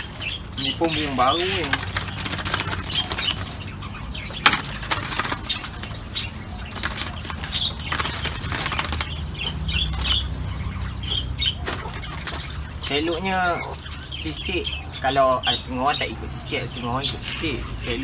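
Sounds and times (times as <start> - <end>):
dove flapping wings: 0.0 - 3.5, 4.4 - 9.3, 11.6 - 12.9.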